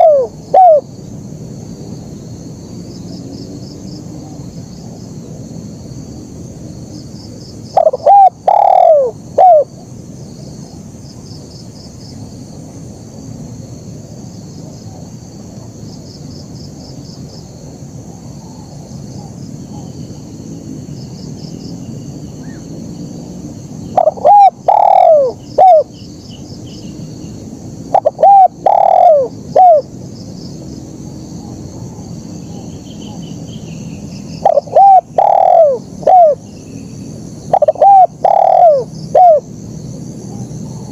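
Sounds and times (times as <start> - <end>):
dove cooing: 0.0 - 0.9, 7.8 - 9.8, 24.0 - 25.9, 27.9 - 29.9, 34.4 - 36.4, 37.5 - 39.5
high insect trill: 0.0 - 40.9.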